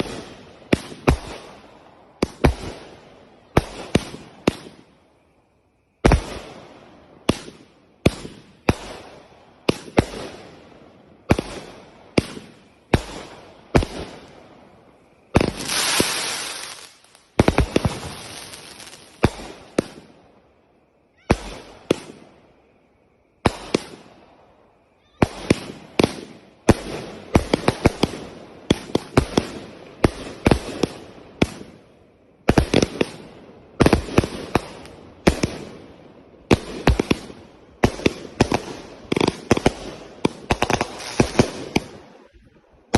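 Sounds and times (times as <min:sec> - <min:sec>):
fireworks bangs: 0:00.0 - 0:05.3, 0:06.0 - 0:20.3, 0:25.2 - 0:31.8, 0:32.4 - 0:42.9
fireworks hissing burst: 0:15.3 - 0:19.8
fireworks crackle: 0:15.3 - 0:20.2, 0:36.5 - 0:42.9.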